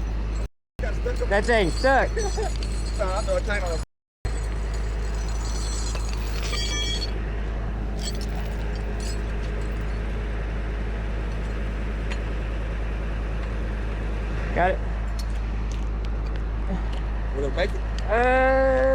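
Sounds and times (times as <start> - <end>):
metallic chain clinking: 0.0 - 7.2, 7.8 - 10.1
truck engine idling: 0.0 - 18.9.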